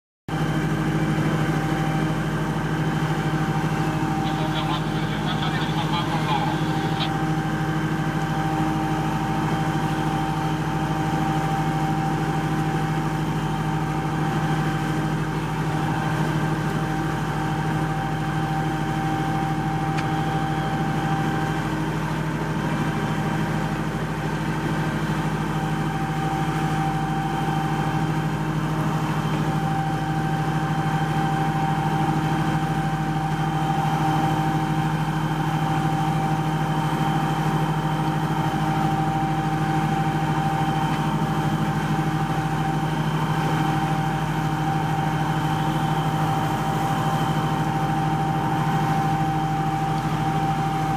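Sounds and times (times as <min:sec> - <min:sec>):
ship engine drone: 0:00.3 - 0:50.9
faint high whine: 0:03.9 - 0:07.3.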